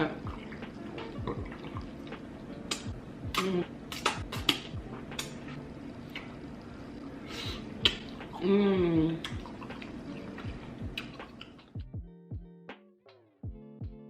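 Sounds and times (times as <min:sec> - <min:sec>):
wet mouth clicks and smacks: 0:02.7 - 0:05.4, 0:07.8 - 0:08.4, 0:09.2 - 0:11.8.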